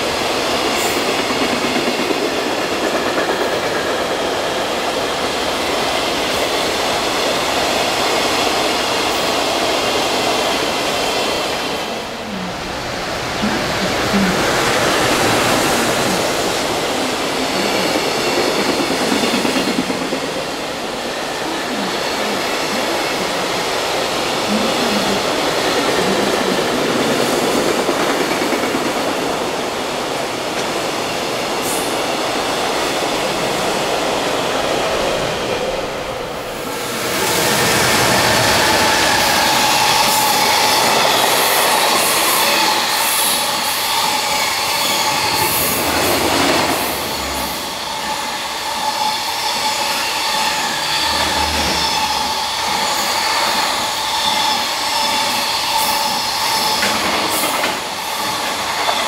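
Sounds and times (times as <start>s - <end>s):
freight train rumbling and clattering: 0.0s - 59.0s
train wheel squeal: 37.2s - 59.0s.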